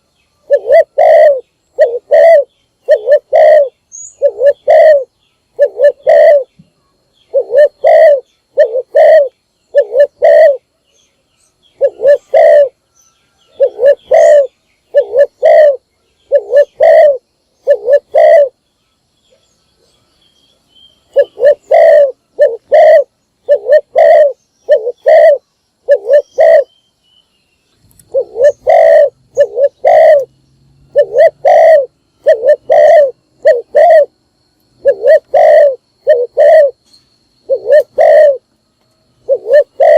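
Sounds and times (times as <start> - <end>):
dove cooing: 0.0 - 6.5, 7.3 - 10.7, 11.7 - 12.8, 13.5 - 18.6, 21.1 - 26.7, 28.0 - 30.3, 30.9 - 34.1, 34.8 - 36.8, 37.4 - 38.5, 39.2 - 39.9.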